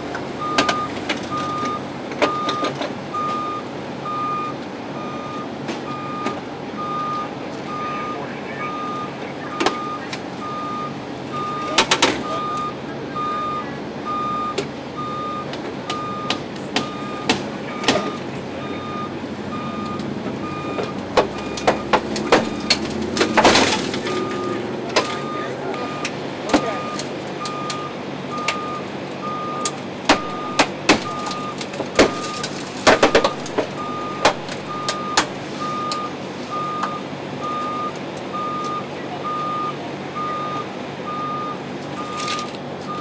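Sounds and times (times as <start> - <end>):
engine idling: 0.0 - 43.0
vehicle backup alarm beeping: 0.4 - 43.0
sharp knocks and clanks: 15.5 - 18.2, 19.9 - 25.2, 30.0 - 35.4.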